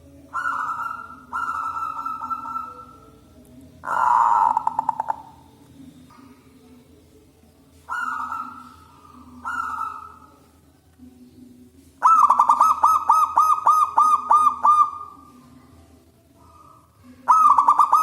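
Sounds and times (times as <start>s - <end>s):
dove cooing: 0.0s - 3.2s, 3.8s - 5.5s, 7.8s - 10.5s, 12.0s - 15.5s, 16.4s - 18.0s.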